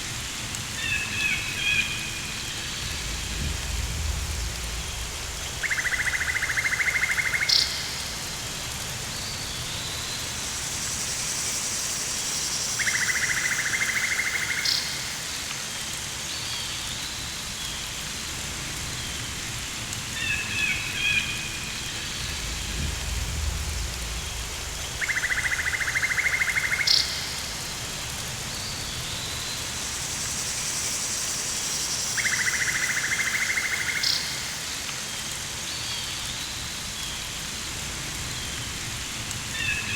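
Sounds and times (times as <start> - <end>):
steady hiss: 0.0 - 39.9
low rumble: 2.6 - 6.2, 22.1 - 25.0
high shimmering insect drone: 29.2 - 34.6.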